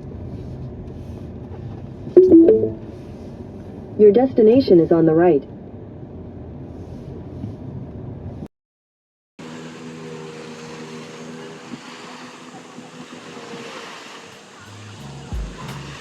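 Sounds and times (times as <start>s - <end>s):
road rumble inside car: 0.0s - 2.2s, 5.2s - 8.5s.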